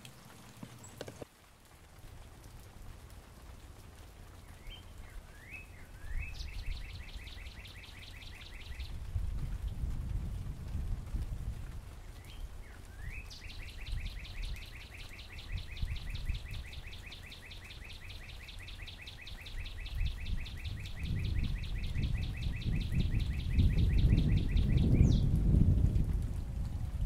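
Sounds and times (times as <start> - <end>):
songbird trilling: 4.6 - 9.0, 12.2 - 25.3.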